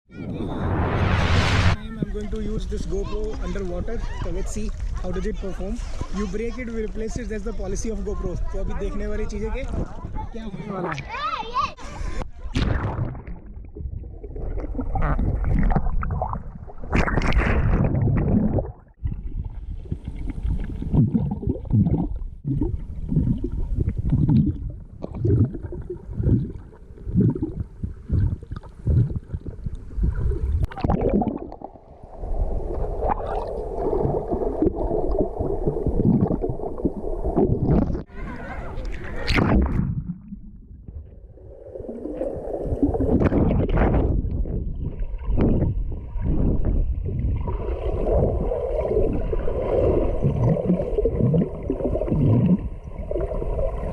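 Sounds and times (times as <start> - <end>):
water gurgling underwater: 12.5 - 53.9.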